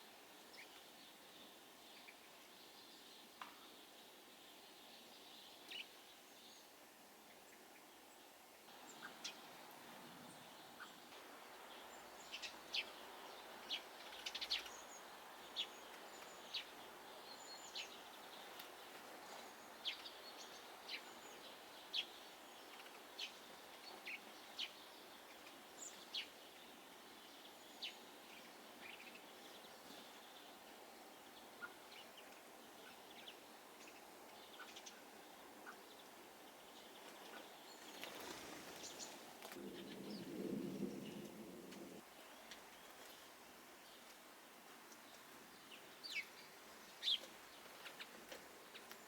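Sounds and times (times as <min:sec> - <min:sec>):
faint background hiss: 0:00.0 - 0:49.0
small birds calling: 0:07.4 - 0:41.2.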